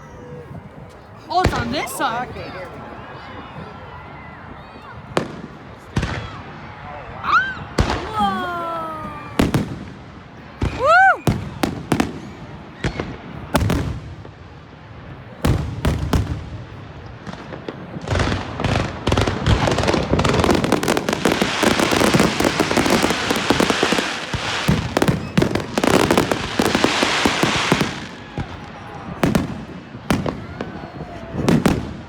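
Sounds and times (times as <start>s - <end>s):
fireworks bangs: 0.5s - 2.8s, 4.5s - 32.0s
fireworks crackling pops: 9.0s - 32.0s.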